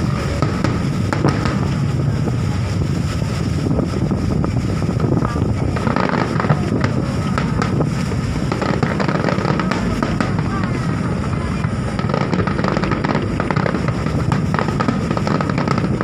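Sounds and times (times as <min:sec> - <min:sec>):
fireworks popping and crackling: 0:00.0 - 0:16.0
low rumble: 0:00.0 - 0:16.0.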